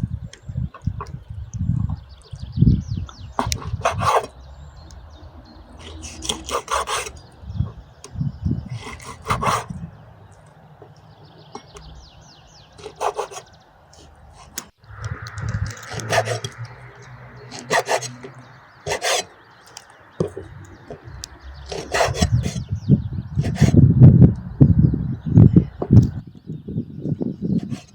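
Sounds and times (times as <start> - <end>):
rasping scraping strokes: 3.4 - 4.4, 5.8 - 7.3, 8.7 - 9.8, 12.8 - 22.7, 23.4 - 23.8, 27.6 - 27.9.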